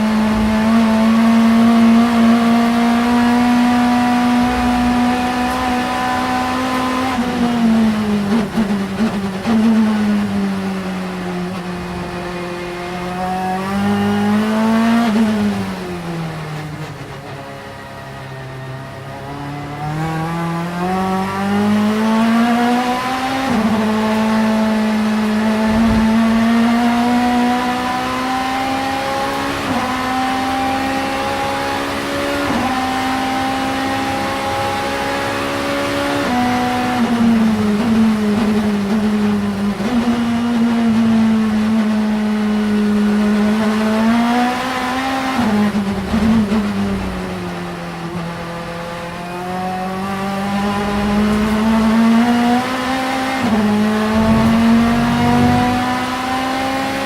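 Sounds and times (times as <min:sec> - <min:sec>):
race car engine accelerating: 0:00.0 - 0:57.0.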